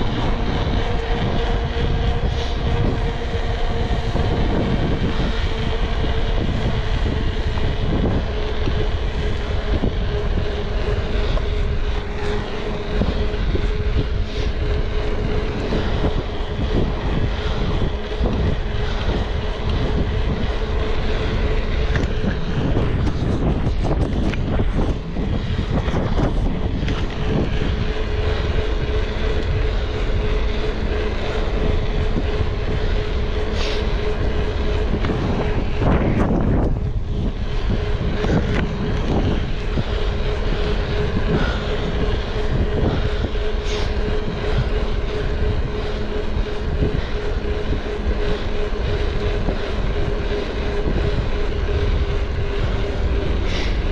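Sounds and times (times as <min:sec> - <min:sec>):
engine drone: 0:00.0 - 0:53.9.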